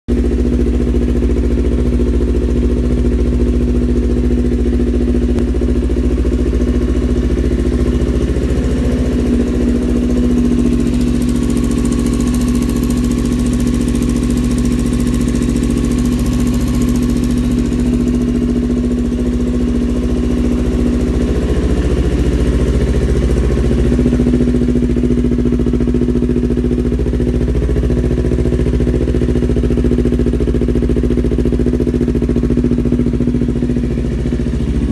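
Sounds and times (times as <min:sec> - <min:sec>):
motorcycle engine idling: 0:00.1 - 0:34.9.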